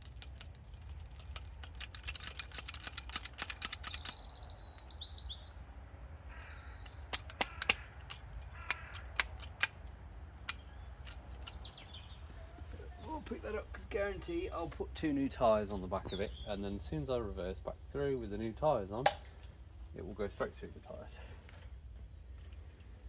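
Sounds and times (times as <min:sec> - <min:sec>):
rivet gun clicking: 0:00.0 - 0:04.3, 0:06.9 - 0:11.6
rivets snapping: 0:00.0 - 0:05.0, 0:06.8 - 0:11.7
birds calling: 0:00.0 - 0:23.0.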